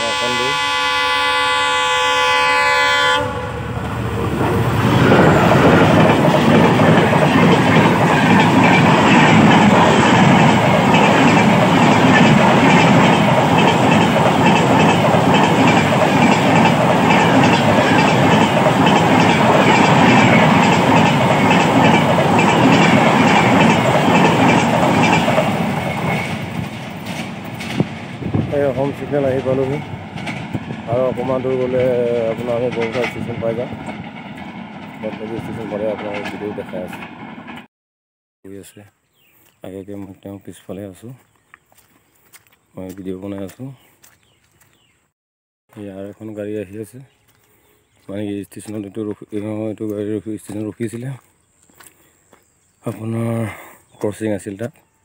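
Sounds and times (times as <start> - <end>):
train rumbling past: 0.0 - 37.7
wheels clattering over rail joints: 3.8 - 37.2.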